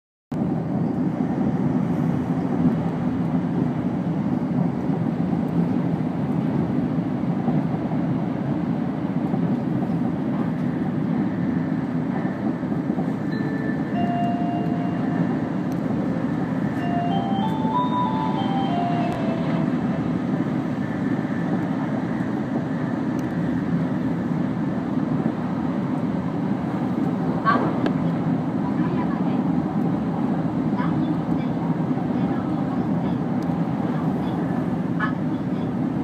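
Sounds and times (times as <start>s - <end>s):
train running noise in cabin: 0.3s - 36.0s.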